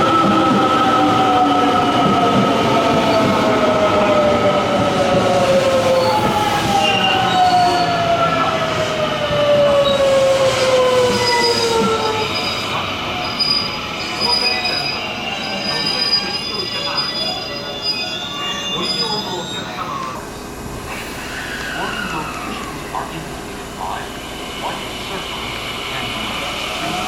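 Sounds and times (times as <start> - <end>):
rumble of train wheels: 0.0 - 14.9.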